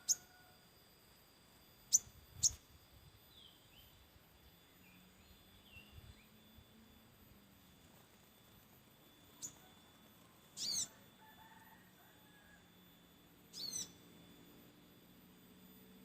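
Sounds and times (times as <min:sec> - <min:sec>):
bird chittering calls: 0:00.0 - 0:00.3, 0:01.9 - 0:02.6, 0:09.3 - 0:09.8, 0:10.5 - 0:11.0, 0:13.5 - 0:14.2.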